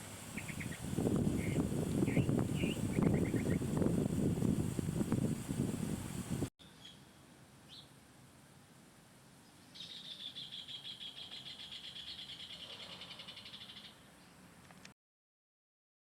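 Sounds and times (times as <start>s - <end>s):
bird chirping and trilling: 0.4s - 0.8s, 1.4s - 3.7s, 6.6s - 7.9s, 9.6s - 14.0s.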